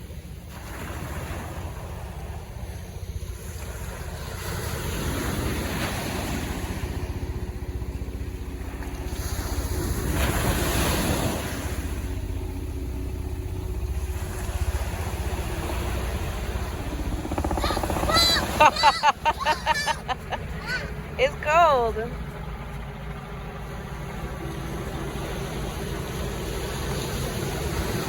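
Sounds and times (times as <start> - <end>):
ocean surf breaking: 14.2 - 21.8.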